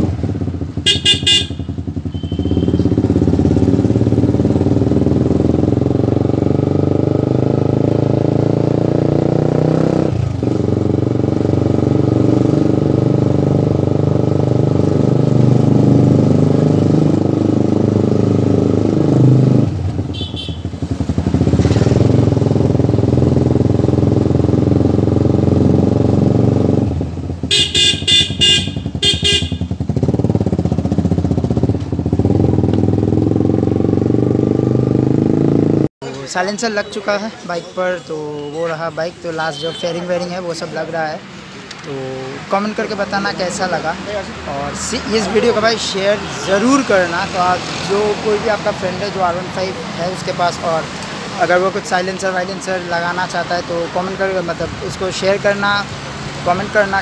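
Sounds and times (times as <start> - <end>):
motorcycle engine running: 0.0 - 35.9
horn beeps: 0.9 - 3.0, 27.5 - 29.7.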